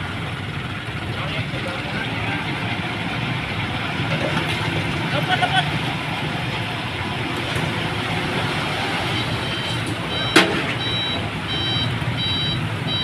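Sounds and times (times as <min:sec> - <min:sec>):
diesel truck engine running: 0:00.0 - 0:13.0
reversing alarm beeping: 0:09.1 - 0:13.0.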